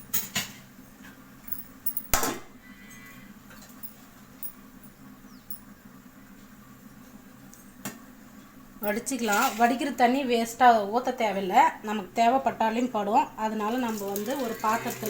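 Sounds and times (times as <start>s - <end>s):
low steady hum: 0.0s - 15.0s
sharp clack: 1.9s - 2.4s.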